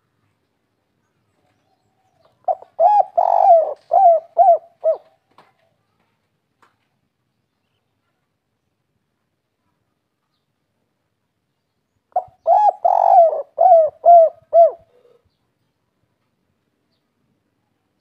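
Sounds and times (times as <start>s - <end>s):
dove cooing: 2.4s - 5.2s, 12.2s - 15.2s.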